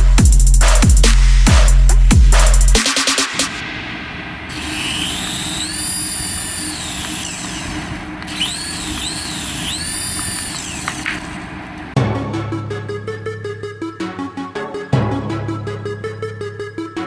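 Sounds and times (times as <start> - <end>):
small electric motor whirring: 4.5 - 11.5.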